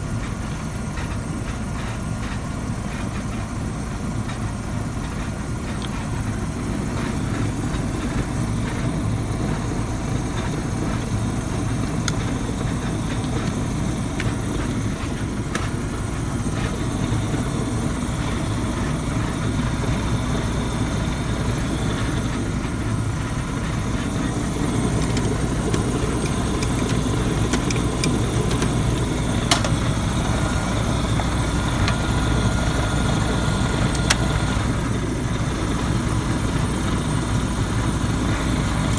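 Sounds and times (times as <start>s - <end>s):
furnace burner rumbling: 0.0s - 38.9s
sharp clicks: 24.0s - 34.8s.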